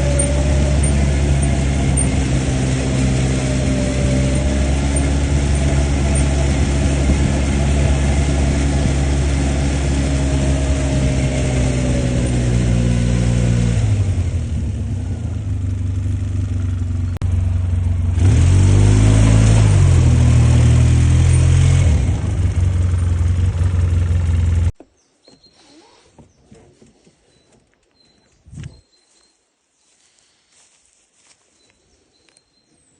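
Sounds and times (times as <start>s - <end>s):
atv engine revving: 0.0s - 24.8s.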